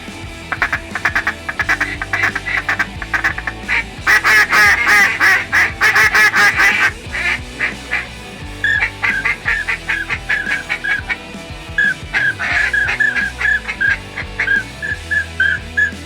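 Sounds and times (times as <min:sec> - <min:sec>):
music: 0:00.0 - 0:16.0
ducks quacking: 0:00.5 - 0:08.1.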